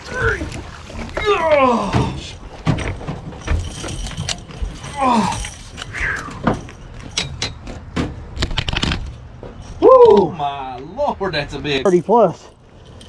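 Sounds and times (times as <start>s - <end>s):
knocks and clatters on a boat: 0.0s - 10.2s
person exclaiming: 9.8s - 10.4s.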